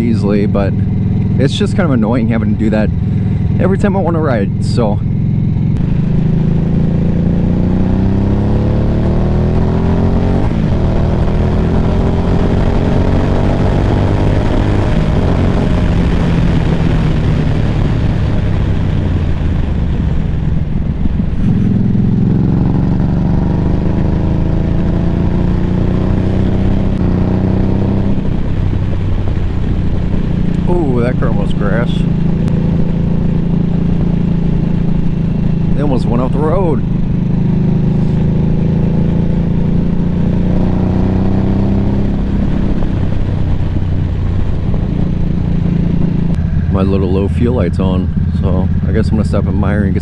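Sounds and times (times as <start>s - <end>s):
motorcycle engine accelerating: 0.0s - 50.0s
wind rush: 0.0s - 50.0s.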